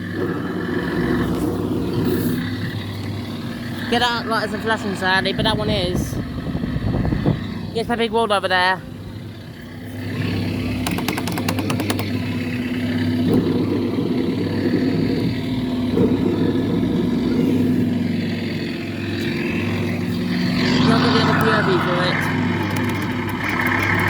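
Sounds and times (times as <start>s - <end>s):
kiddie ride engine-like rumble: 0.0s - 24.0s
quick clicks: 10.8s - 12.3s, 22.5s - 24.0s.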